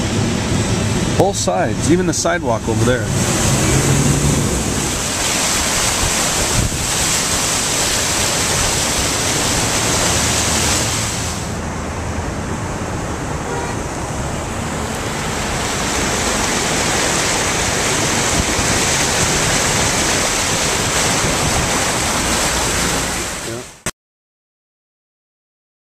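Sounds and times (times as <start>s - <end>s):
heavy rain: 0.0s - 23.9s
runoff water pouring: 2.5s - 11.6s, 14.4s - 23.8s.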